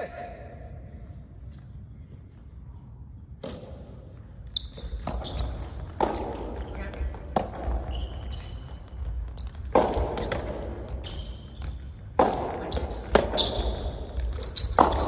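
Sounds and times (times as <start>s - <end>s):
rackets striking tennis ball: 3.4s - 4.0s, 4.7s - 15.0s
ball bouncing: 4.6s - 15.0s.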